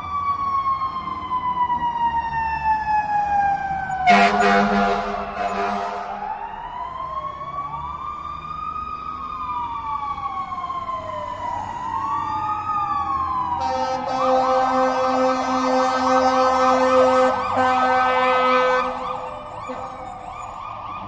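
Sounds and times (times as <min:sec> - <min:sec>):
police siren: 0:00.0 - 0:21.0
loud horn blast: 0:04.0 - 0:06.3, 0:13.6 - 0:20.1.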